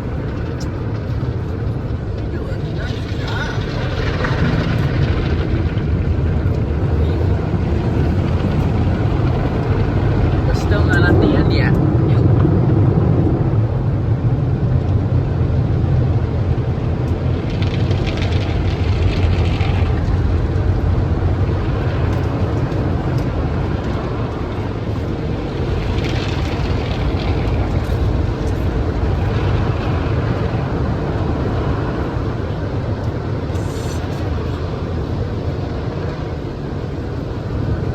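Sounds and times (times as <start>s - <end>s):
car wash low rumble: 0.0s - 37.9s
hiss of spray washing over car: 33.5s - 34.4s.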